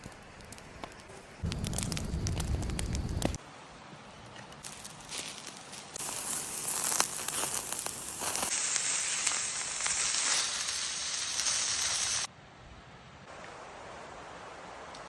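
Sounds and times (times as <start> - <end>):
food sizzling and crackling: 0.6 - 3.4, 4.8 - 12.3.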